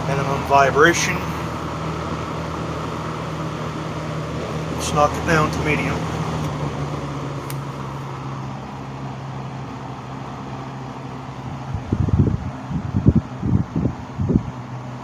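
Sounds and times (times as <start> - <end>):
box fan humming: 0.0 - 15.0
fan switch click: 5.5 - 8.0.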